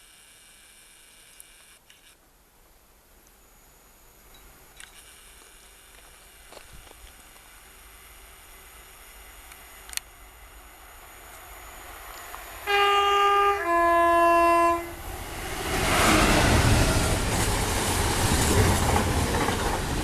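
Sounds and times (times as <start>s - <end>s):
train rumble: 6.6s - 20.0s
train two-tone horn: 12.6s - 16.8s.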